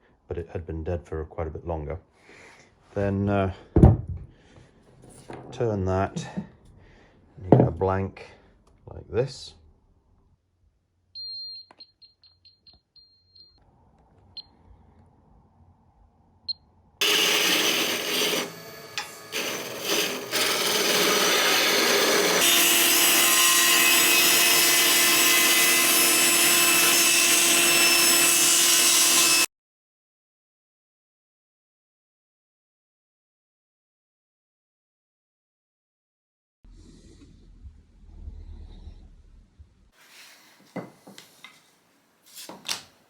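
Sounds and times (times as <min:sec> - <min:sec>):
short high-pitched beeps: 0:11.2 - 0:13.6
power tool working wood: 0:17.0 - 0:29.5.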